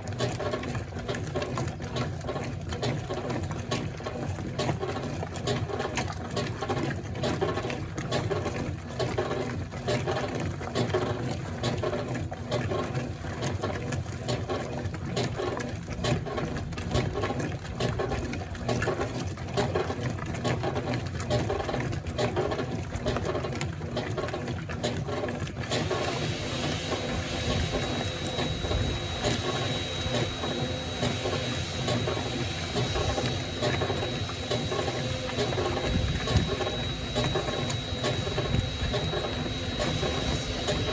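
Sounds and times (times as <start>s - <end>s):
washing machine agitator churning: 0.0s - 40.9s
water sloshing: 0.0s - 40.9s
thin high whine: 26.2s - 40.9s.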